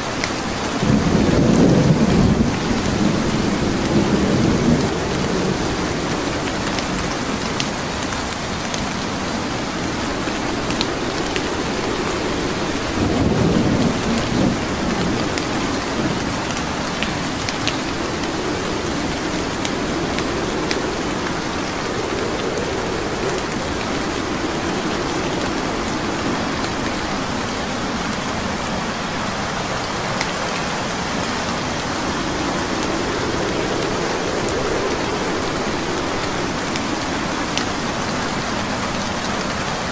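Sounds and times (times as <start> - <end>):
steady rain: 0.0 - 39.9
thunder rumbling: 0.5 - 39.9
logs crackling in fireplace: 9.7 - 28.7.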